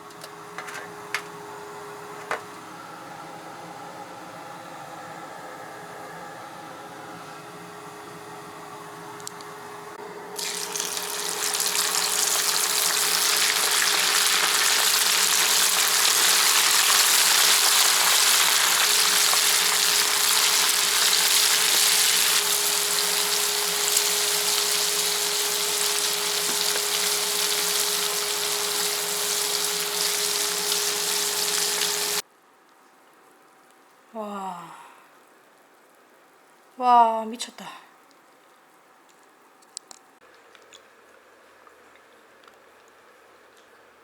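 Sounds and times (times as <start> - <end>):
food sizzling in hot oil: 10.4 - 32.2.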